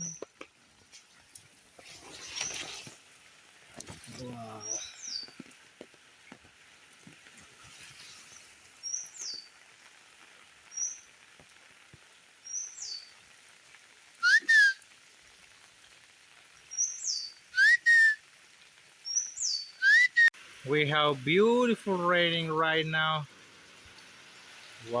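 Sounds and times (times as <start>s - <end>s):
rain hissing: 0.0s - 25.0s
birds chirping: 4.4s - 5.5s, 8.2s - 9.6s, 12.4s - 13.2s, 16.7s - 18.1s, 19.0s - 20.3s
bird rising call: 14.2s - 14.8s, 16.8s - 18.2s, 19.1s - 20.3s.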